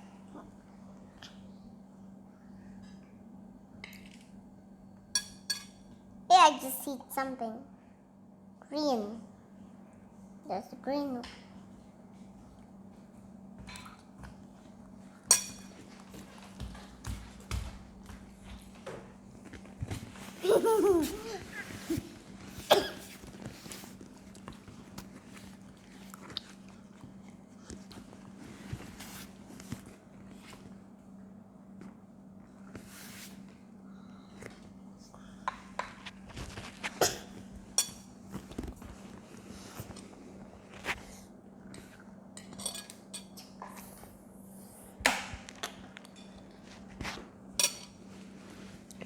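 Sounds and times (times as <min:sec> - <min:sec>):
utensils clinking against dishes: 0:05.2 - 0:05.9, 0:15.2 - 0:16.0, 0:37.7 - 0:38.1, 0:42.4 - 0:43.6, 0:47.6 - 0:48.0.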